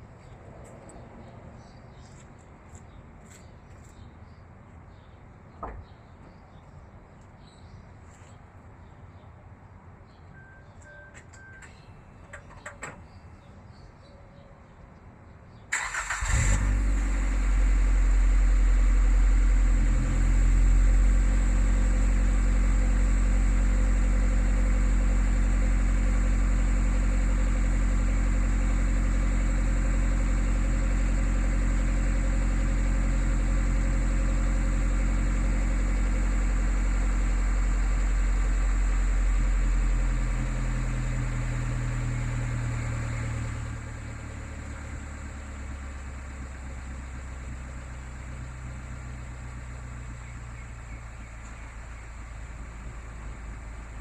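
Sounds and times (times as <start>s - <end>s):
car engine cold start: 15.7s - 19.0s
car engine fast idle: 15.7s - 54.0s.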